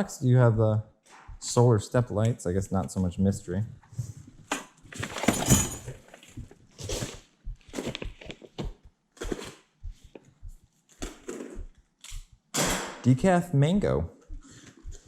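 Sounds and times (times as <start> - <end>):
rustling and knocking of boxes: 4.2 - 12.3.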